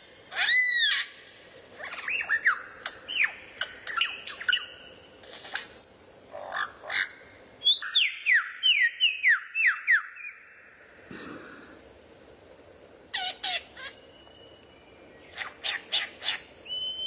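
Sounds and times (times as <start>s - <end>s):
songbird whistling: 1.9s - 4.9s, 13.2s - 17.0s.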